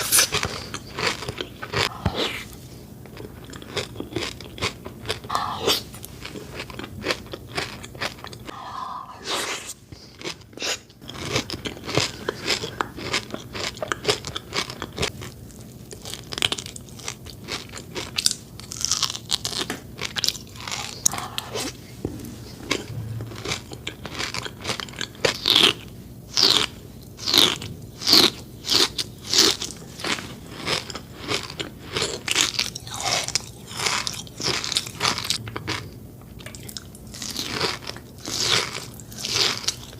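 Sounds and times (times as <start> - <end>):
crunching and chewing chocolate: 0.0 - 21.8, 22.6 - 39.9.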